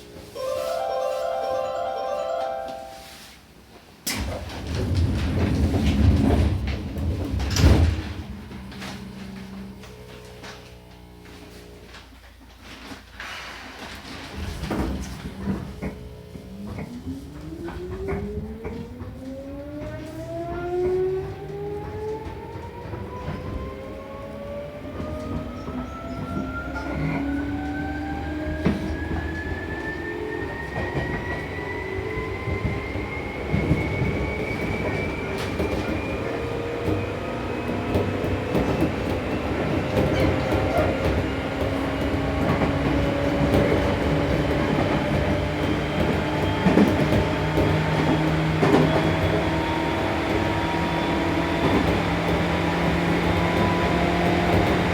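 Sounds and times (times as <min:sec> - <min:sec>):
wheel and rail rumble: 0:04.1 - 0:54.9.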